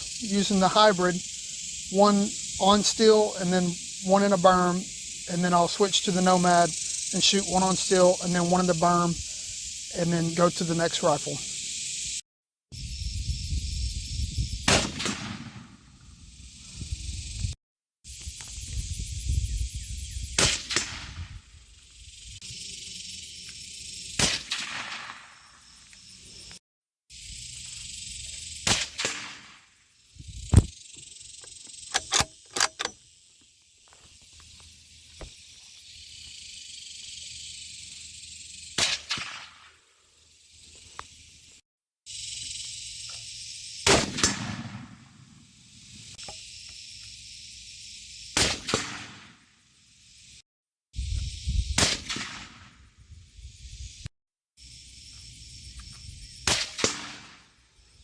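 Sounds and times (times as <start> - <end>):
rifle shots: 14.7 - 15.8, 24.2 - 25.4, 28.7 - 29.6, 43.9 - 45.1, 56.5 - 57.4
sharp clicks: 31.4 - 33.0.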